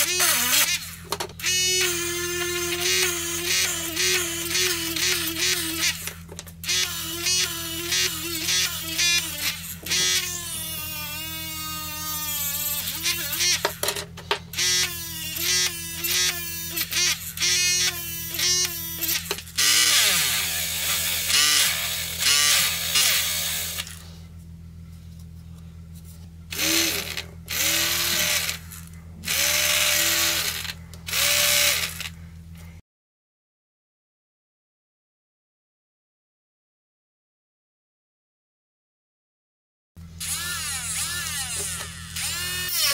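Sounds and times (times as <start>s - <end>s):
small drill motor whining: 0.0s - 24.1s, 26.5s - 32.2s, 40.2s - 42.9s.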